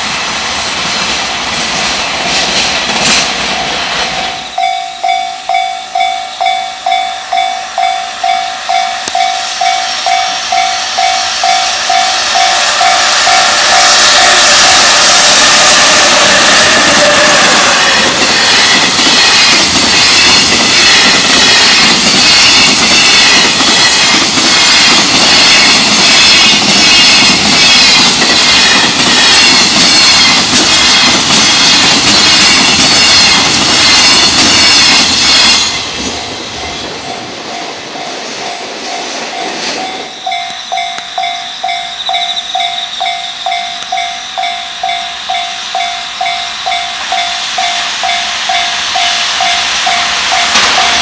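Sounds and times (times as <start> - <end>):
freight train wheels clattering: 0.0 - 51.0
level crossing bell ringing: 4.3 - 13.9, 36.6 - 51.0.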